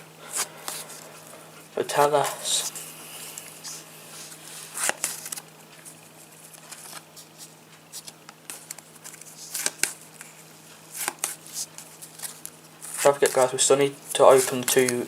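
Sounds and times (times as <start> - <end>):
trading cards rustling and tapping: 3.4 - 15.0.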